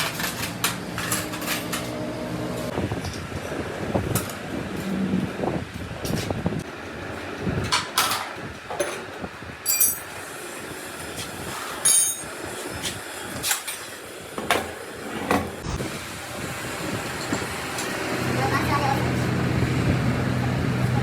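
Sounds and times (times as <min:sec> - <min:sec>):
metal tools clanking: 0:00.0 - 0:02.1, 0:07.8 - 0:10.1, 0:11.8 - 0:12.3.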